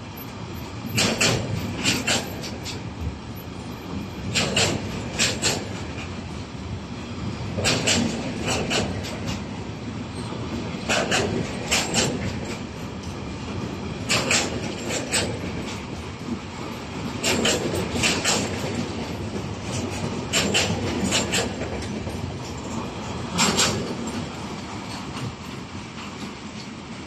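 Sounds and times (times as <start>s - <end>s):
freight train rumbling past: 0.0s - 27.0s
wheels clacking over rail joint: 0.2s - 6.4s, 7.2s - 26.9s.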